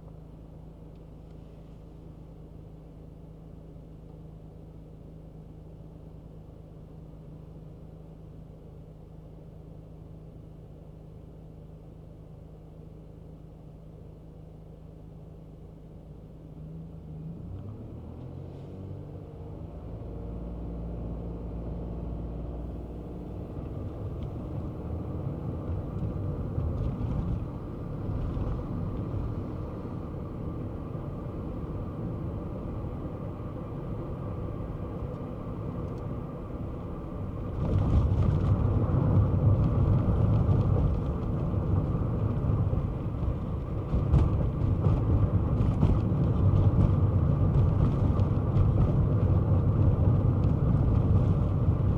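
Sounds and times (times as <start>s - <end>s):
road and tyre rumble: 0.0s - 51.9s
small car engine pulling away: 16.7s - 51.9s.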